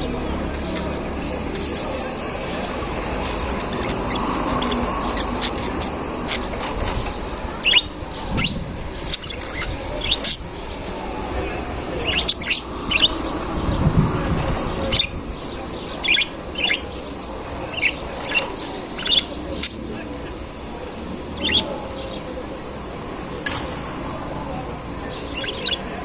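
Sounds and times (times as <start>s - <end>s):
low background noise: 0.0s - 26.0s
budgerigars chirping: 0.4s - 10.8s, 12.0s - 13.4s, 14.5s - 19.8s, 25.2s - 26.0s.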